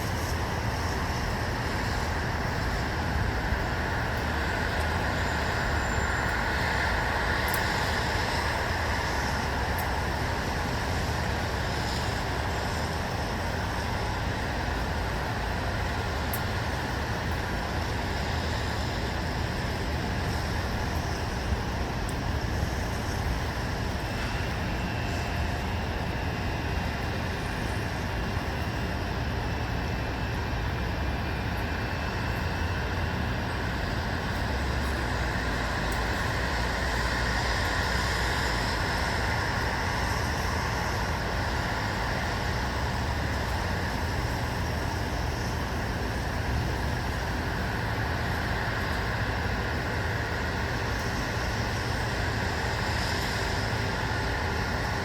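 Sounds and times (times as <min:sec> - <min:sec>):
distant road traffic hum: 0:00.0 - 0:55.0.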